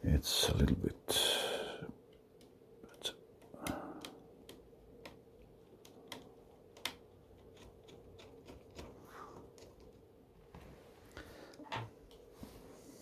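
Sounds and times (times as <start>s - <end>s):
plastic laptop parts clicking: 3.4s - 10.0s.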